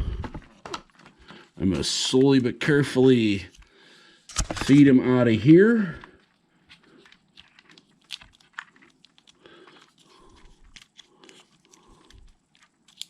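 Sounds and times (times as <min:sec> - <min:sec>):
light rustling of wires: 0:04.3 - 0:13.0.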